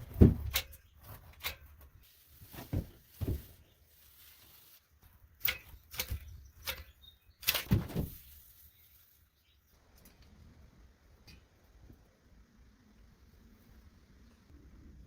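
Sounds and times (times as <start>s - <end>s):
knocks and thuds of handwork: 0.0s - 0.6s, 2.5s - 3.6s, 7.6s - 8.2s.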